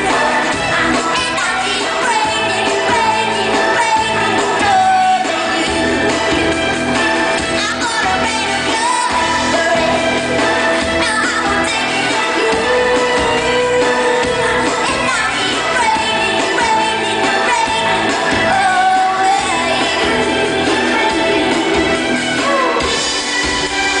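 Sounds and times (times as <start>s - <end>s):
woman singing: 0.0s - 6.5s, 7.4s - 23.0s
live pop band playing: 0.0s - 24.0s.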